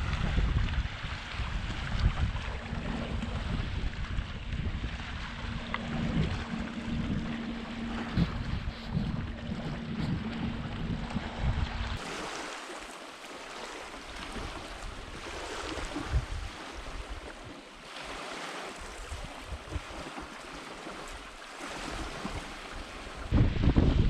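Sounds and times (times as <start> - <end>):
wind gusting on microphone: 0.0 - 12.5, 14.1 - 17.5, 23.2 - 24.0
small waves washing on shore: 0.0 - 23.4.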